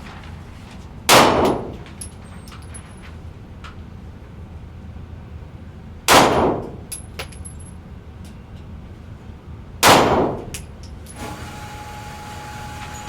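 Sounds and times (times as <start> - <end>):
gunshots: 1.1 - 1.7, 6.1 - 6.8, 9.8 - 10.5.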